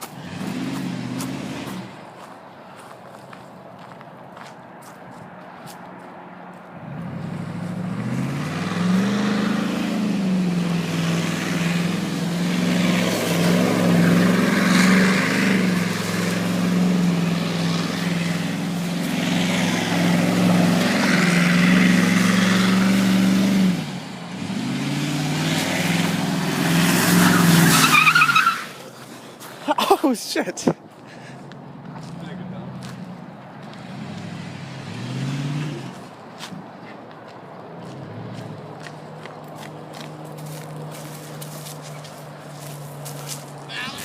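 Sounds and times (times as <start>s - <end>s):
truck engine revving: 0.0s - 2.0s, 6.8s - 29.0s, 31.8s - 36.1s
tyre squeal: 27.2s - 28.9s.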